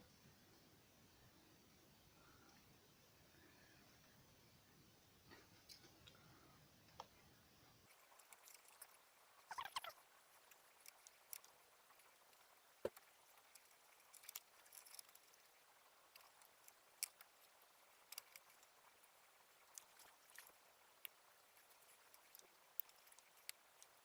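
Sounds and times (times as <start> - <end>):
faint clicks and taps: 5.3 - 7.2, 7.9 - 15.5.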